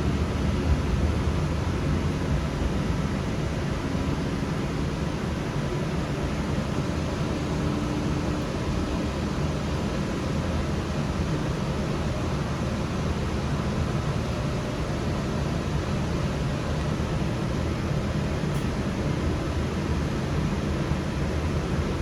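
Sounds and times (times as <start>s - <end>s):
light rail train rumbling: 0.0s - 22.0s.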